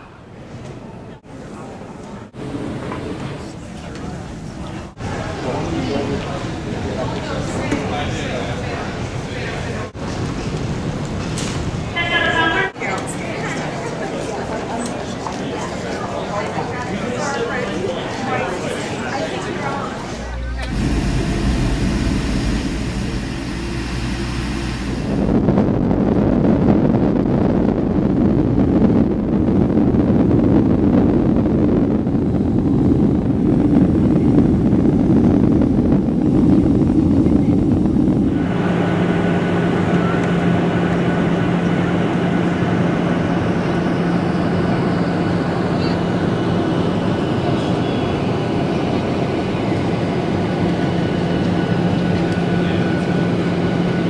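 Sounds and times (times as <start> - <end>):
vehicle running noise: 20.2 - 25.9.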